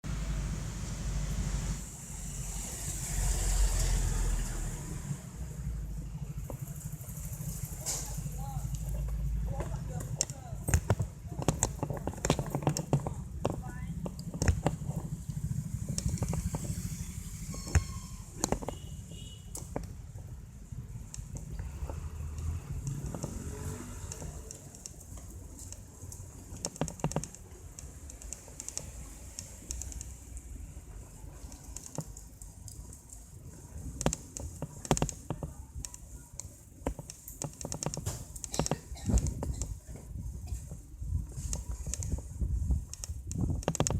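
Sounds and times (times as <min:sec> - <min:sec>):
low traffic rumble: 0:00.0 - 0:43.9
vehicle engine passing by: 0:00.1 - 0:08.7, 0:21.6 - 0:24.6
bike rolling on pavement: 0:00.2 - 0:43.9.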